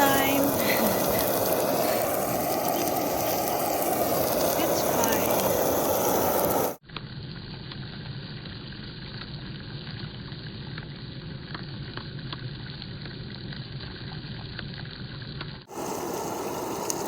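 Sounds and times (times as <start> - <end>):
rush of noise: 0.0 - 6.8
food sizzling in a pan: 0.0 - 11.8, 15.6 - 17.0.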